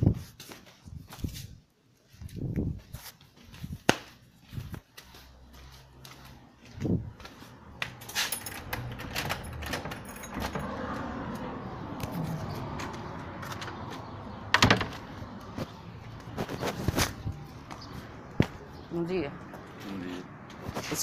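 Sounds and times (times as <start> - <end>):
rattling and knocking: 14.5 - 15.1.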